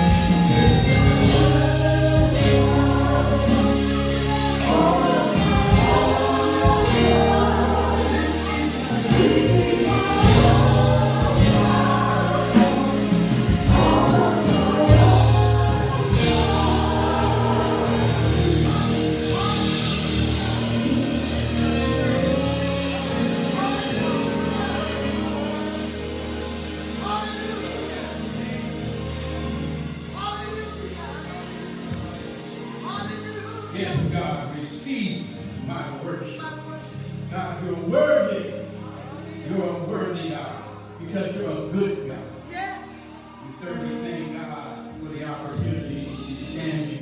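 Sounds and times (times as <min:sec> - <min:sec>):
bass guitar: 0:00.0 - 0:32.7
drums: 0:00.0 - 0:34.4
gospel choir singing: 0:00.0 - 0:47.0.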